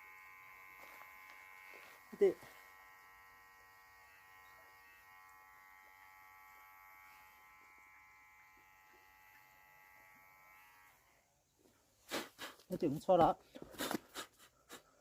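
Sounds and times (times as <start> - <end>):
faint steady buzz: 0.0 - 11.8.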